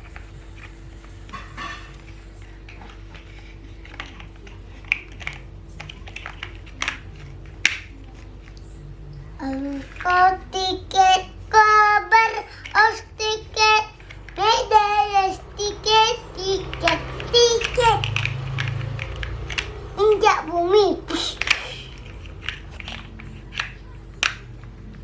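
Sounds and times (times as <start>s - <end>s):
child singing: 9.4s - 18.2s, 20.0s - 21.2s.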